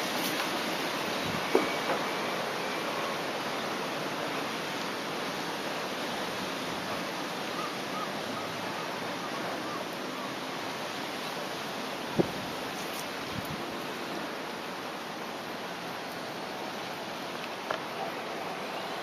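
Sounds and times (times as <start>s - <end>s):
strong wind blowing: 12.1s - 13.8s.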